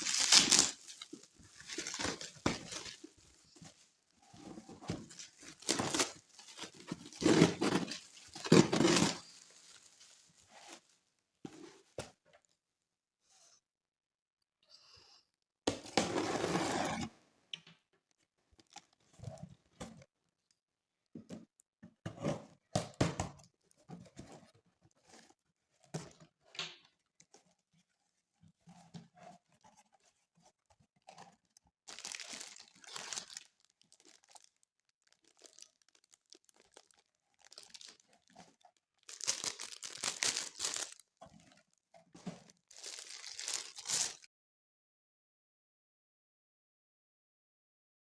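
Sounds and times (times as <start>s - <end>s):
plastic packaging crinkling and tearing: 0.0s - 3.8s, 4.4s - 10.8s, 31.9s - 41.6s, 42.4s - 44.3s.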